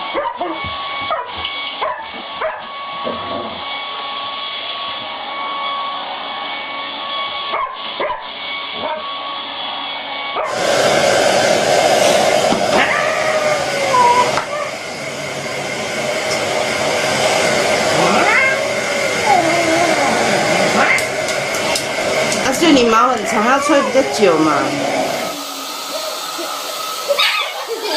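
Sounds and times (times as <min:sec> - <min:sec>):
hair dryer blowing: 0:00.0 - 0:27.9
dog whining and yipping: 0:00.1 - 0:02.6, 0:12.8 - 0:14.8, 0:18.1 - 0:18.6, 0:19.2 - 0:21.0, 0:27.1 - 0:27.7.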